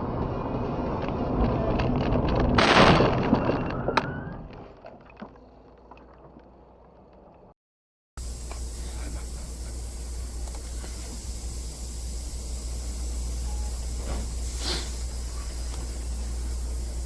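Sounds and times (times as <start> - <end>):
car road and engine noise: 0.0 - 2.8
loud crash impact: 2.5 - 3.6.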